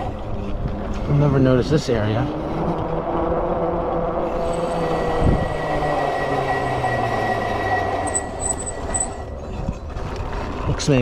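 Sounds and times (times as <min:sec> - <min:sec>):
wind noise: 0:00.0 - 0:11.0
electric motor whine: 0:04.2 - 0:09.3.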